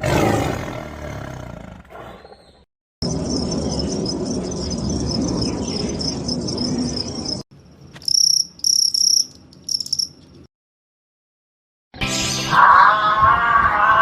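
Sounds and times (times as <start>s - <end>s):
cricket chirping bursts: 3.0s - 10.2s
crickets chirring trill: 3.0s - 10.2s.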